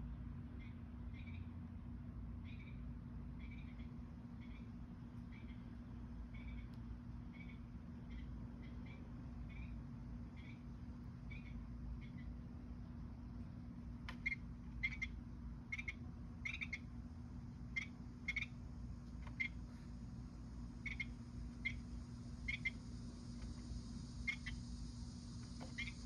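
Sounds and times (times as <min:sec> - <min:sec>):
steady low hum: 0:00.0 - 0:26.0
bird calling in sharp notes: 0:14.1 - 0:16.9, 0:17.7 - 0:18.6, 0:20.8 - 0:22.8, 0:24.2 - 0:24.7, 0:25.7 - 0:26.0.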